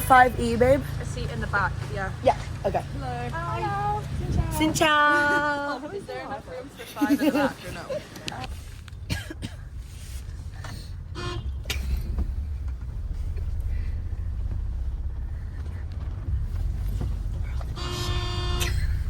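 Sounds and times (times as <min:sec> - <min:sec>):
car engine and road rumble: 0:00.0 - 0:19.0
car horn honking: 0:11.1 - 0:11.8, 0:17.6 - 0:19.0.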